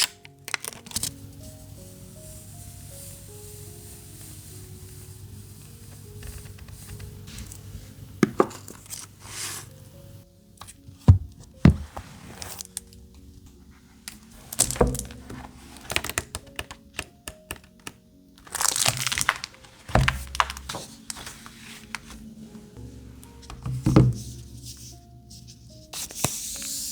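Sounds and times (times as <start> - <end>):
paper rustling: 0.0 - 2.3, 10.6 - 26.9
soft background music: 0.0 - 26.9.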